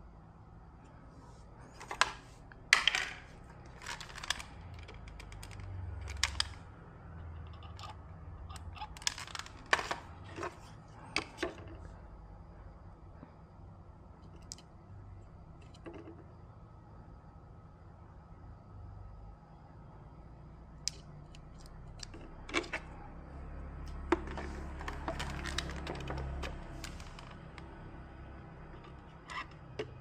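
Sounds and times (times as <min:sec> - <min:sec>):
faint low hum: 0:00.0 - 0:30.0
small hard objects clicking and clattering: 0:02.7 - 0:06.6, 0:07.4 - 0:10.6, 0:23.9 - 0:27.6.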